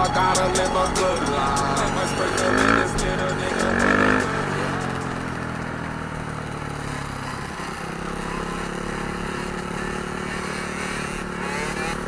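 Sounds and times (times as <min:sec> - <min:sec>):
dirt bike engines running: 0:00.0 - 0:12.0.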